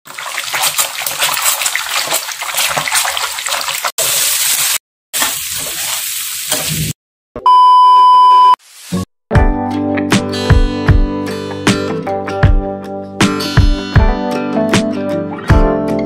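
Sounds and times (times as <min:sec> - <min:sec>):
food deep-frying in oil: 0:00.1 - 0:07.0
beans sizzling in a frying pan: 0:04.0 - 0:06.5
steady electronic beep: 0:07.5 - 0:08.6.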